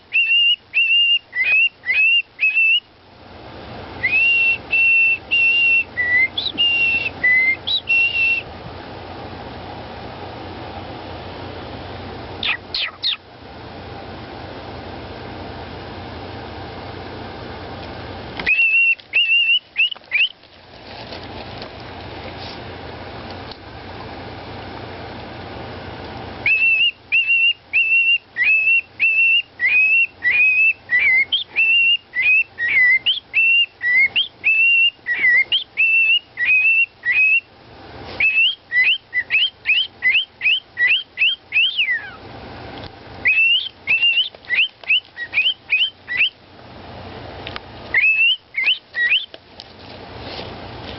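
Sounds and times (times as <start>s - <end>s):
steady low hum: 0.0s - 50.9s
parrot whistling a tune: 0.1s - 2.9s, 4.0s - 8.5s, 12.4s - 13.2s, 18.4s - 20.3s, 26.4s - 37.5s, 38.2s - 42.2s, 43.2s - 46.4s, 47.9s - 49.3s.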